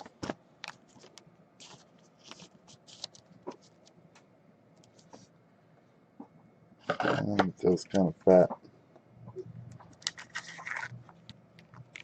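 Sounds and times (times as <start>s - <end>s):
trading cards rustling and clicking: 9.9s - 12.0s.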